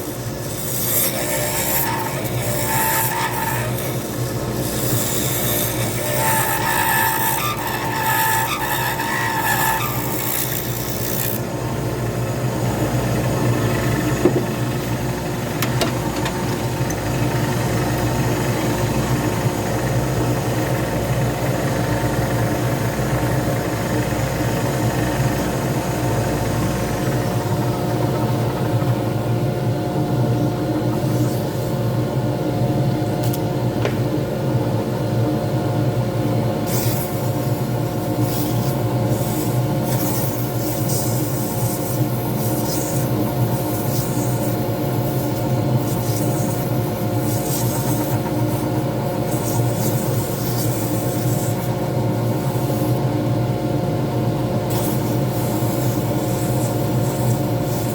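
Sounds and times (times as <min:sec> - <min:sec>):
lathe humming: 0:00.0 - 0:31.7.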